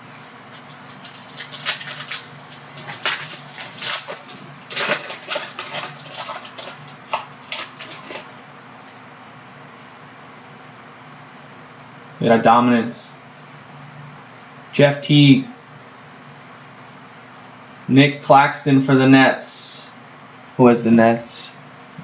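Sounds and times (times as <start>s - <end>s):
card packs crinkling and clicking: 0.5s - 9.0s.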